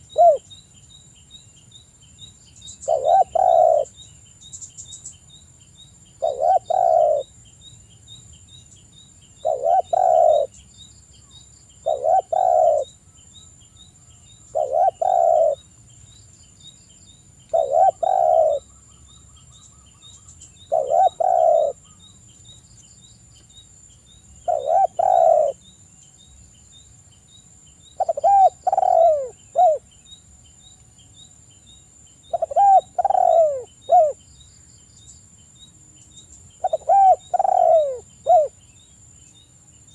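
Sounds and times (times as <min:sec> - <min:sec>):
dove cooing: 0:00.0 - 0:00.5, 0:02.8 - 0:04.0, 0:06.2 - 0:07.3, 0:09.4 - 0:10.5, 0:11.8 - 0:13.0, 0:14.5 - 0:15.6, 0:17.5 - 0:18.7, 0:20.6 - 0:22.0, 0:24.4 - 0:25.6, 0:28.0 - 0:29.8, 0:32.3 - 0:34.2, 0:36.6 - 0:38.6.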